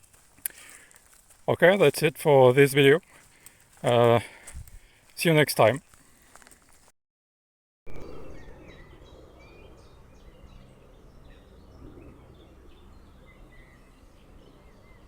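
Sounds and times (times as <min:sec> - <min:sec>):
small birds chirping: 0:00.0 - 0:06.8, 0:08.0 - 0:15.0.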